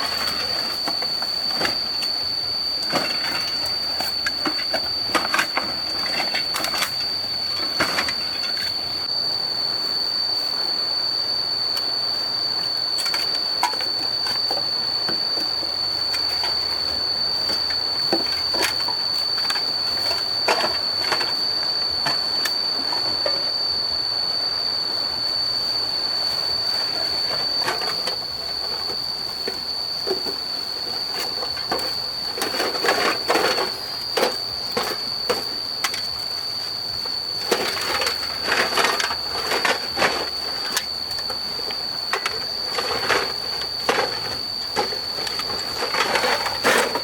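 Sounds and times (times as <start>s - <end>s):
objects clattering: 0.0s - 2.2s, 2.8s - 8.8s, 42.1s - 47.0s
high-pitched whine: 0.0s - 47.0s.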